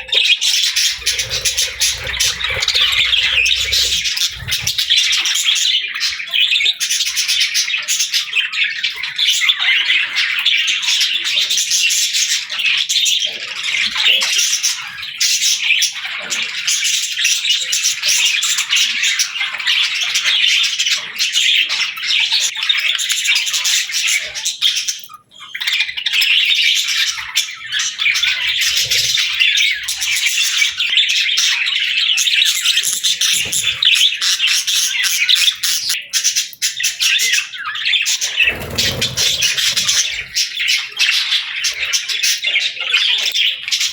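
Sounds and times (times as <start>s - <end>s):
budgerigars chattering and chirping: 0.1s - 12.2s, 23.9s - 43.9s
budgerigar squawks: 0.9s - 5.1s.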